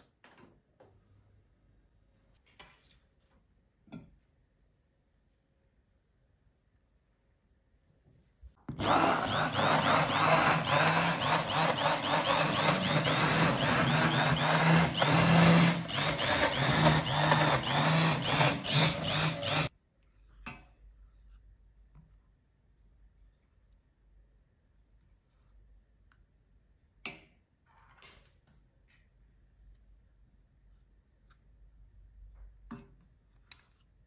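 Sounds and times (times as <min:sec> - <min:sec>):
small electric motor humming: 0:08.8 - 0:19.7.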